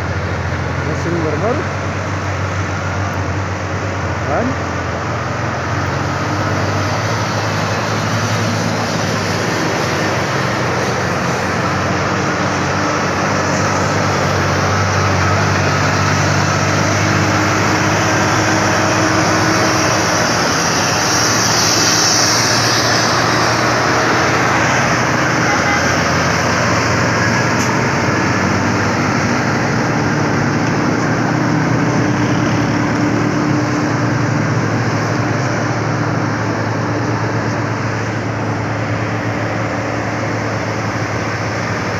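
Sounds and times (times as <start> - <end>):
road noise: 0.0 - 41.9
truck engine pulling uphill: 0.0 - 41.9.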